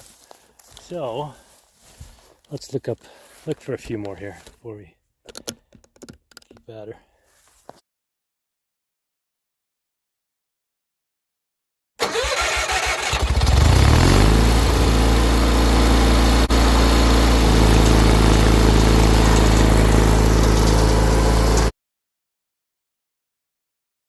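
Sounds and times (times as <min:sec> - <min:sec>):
starter cranking engine: 0:12.0 - 0:21.7
tractor engine running: 0:12.0 - 0:21.7.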